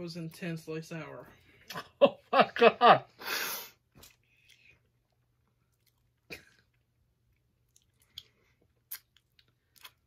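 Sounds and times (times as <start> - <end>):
mouth chewing clicks and smacks: 4.0 - 10.0.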